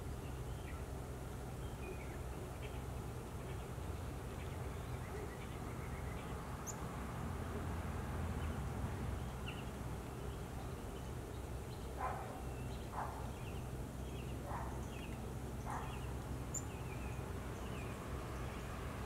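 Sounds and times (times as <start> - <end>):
songbirds chirping: 0.0 - 19.0.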